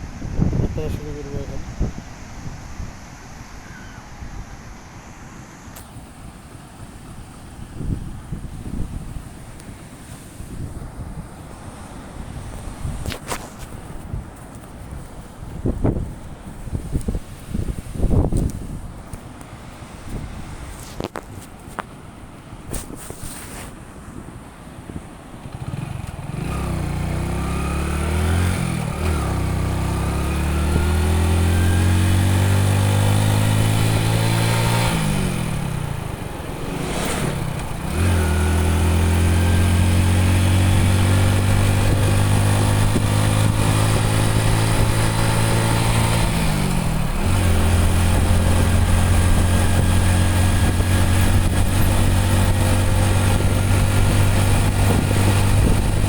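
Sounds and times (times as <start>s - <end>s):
wind and road noise: 0.0s - 56.0s
motorcycle engine accelerating: 25.4s - 56.0s.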